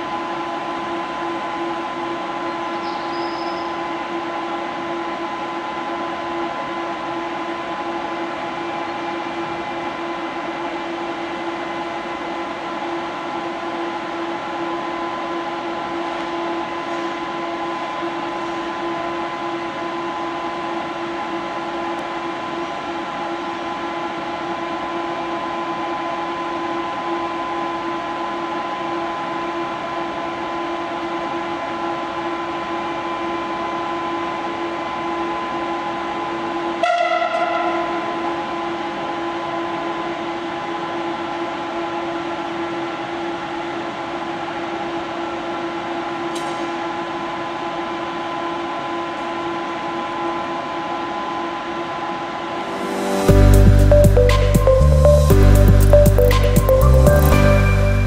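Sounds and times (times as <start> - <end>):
locomotive engine drone: 36.7 - 40.2, 50.6 - 58.0
train horn blast: 36.8 - 38.8.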